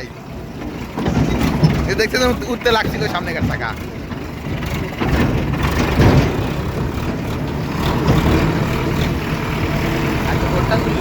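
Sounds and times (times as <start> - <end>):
tractor engine under load: 0.0 - 11.0
loud jolting knocks: 0.6 - 8.9.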